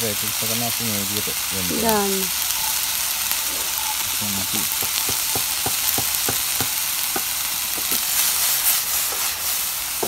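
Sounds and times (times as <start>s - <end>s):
food sizzling in a grill pan: 0.0s - 10.0s
metal spoon scraping a pan: 2.6s - 5.7s.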